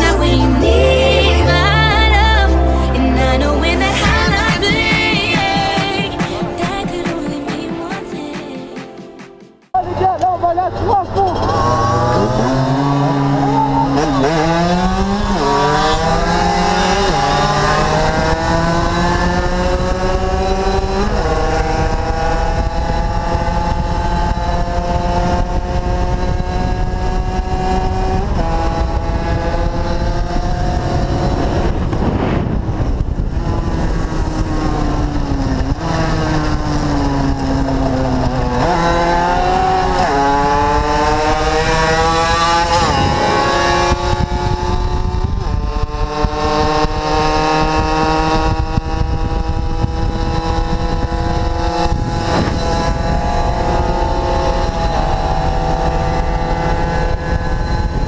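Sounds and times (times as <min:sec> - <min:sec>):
motorcycle engine accelerating: 0:09.8 - 0:58.0
wind on microphone: 0:11.6 - 0:58.0.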